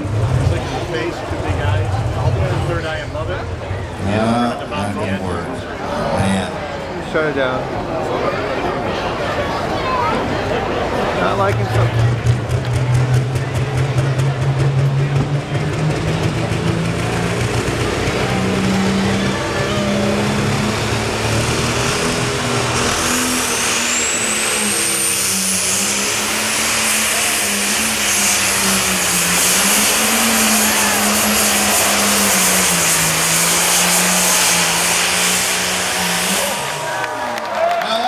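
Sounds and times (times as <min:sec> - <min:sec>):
tractor engine at high revs: 0:00.0 - 0:06.6, 0:10.9 - 0:37.4
turbocharger whine: 0:10.2 - 0:37.6.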